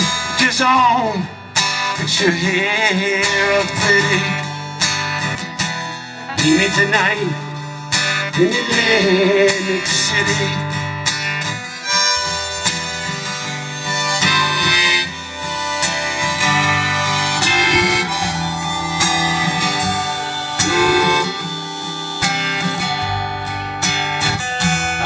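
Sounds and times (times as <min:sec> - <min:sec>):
harmonica: 0:00.0 - 0:25.0
strummed acoustic guitar: 0:00.0 - 0:25.0.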